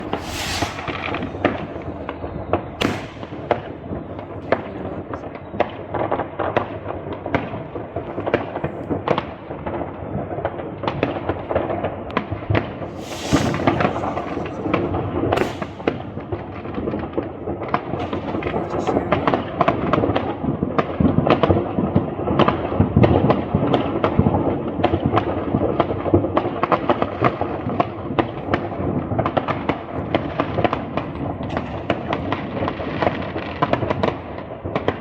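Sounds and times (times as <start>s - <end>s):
loud hissing firework bursts: 0.0s - 3.8s, 12.8s - 16.4s
sharp firework bangs: 0.0s - 4.7s, 12.2s - 19.5s
rumble of distant explosions: 0.0s - 8.4s, 9.0s - 20.8s.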